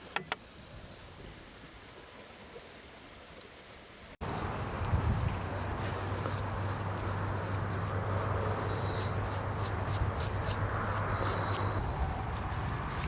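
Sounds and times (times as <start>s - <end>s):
insects chirping: 4.2s - 12.9s.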